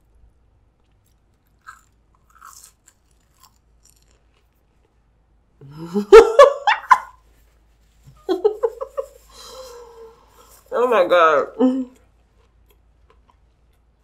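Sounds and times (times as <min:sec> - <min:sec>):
person chewing crunchy food: 0:00.6 - 0:05.1, 0:12.0 - 0:14.0.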